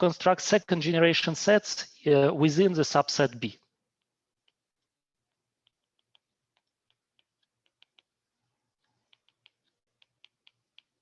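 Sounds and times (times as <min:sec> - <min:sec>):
clicks and taps of writing: 0:03.9 - 0:11.0.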